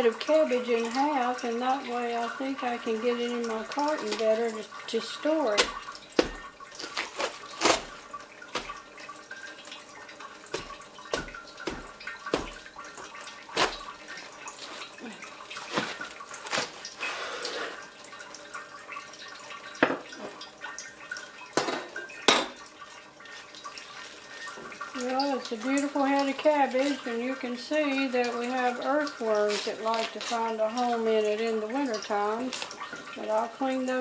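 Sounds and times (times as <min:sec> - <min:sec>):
knife cutting through cabbage: 0:05.5 - 0:08.9, 0:10.5 - 0:12.6, 0:13.5 - 0:14.9, 0:15.6 - 0:16.9.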